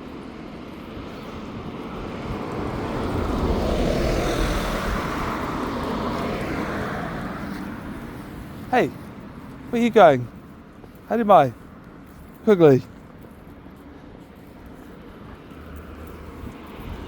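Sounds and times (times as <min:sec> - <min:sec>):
passing motor vehicle rumbling: 0:01.6 - 0:09.7.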